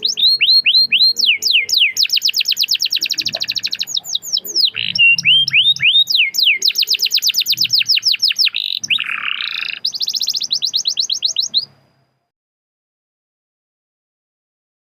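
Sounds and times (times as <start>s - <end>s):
canary singing trills: 0.0s - 12.3s.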